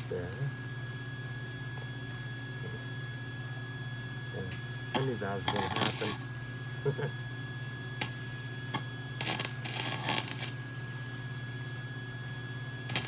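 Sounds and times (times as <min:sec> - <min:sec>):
welder humming: 0:00.0 - 0:13.0
welding arc crackling: 0:05.0 - 0:06.5, 0:09.2 - 0:11.8.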